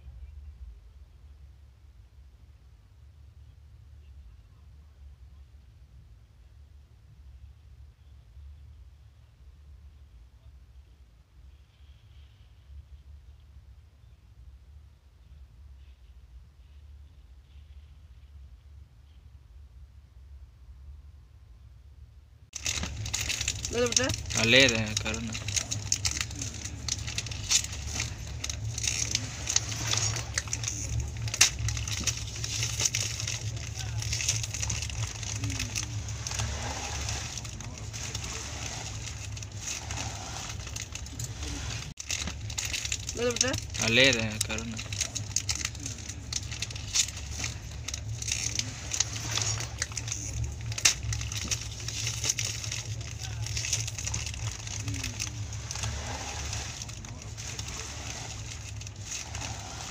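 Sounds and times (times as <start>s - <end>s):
light rattles and clicks: 22.6s - 59.9s.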